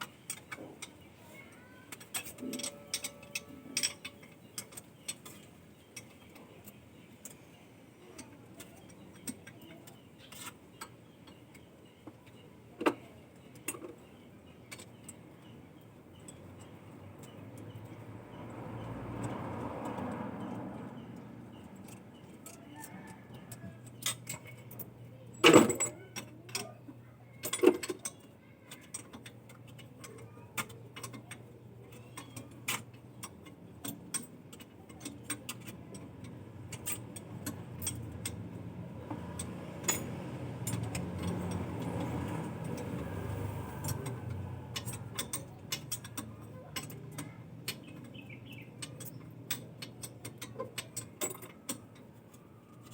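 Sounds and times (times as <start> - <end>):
metallic clicks and clinks: 0.0 - 52.9.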